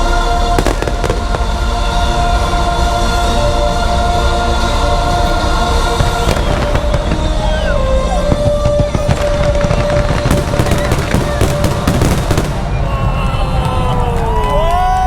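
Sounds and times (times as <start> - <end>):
show music: 0.0 - 13.8
fireworks bursting: 0.5 - 2.5, 5.1 - 14.3.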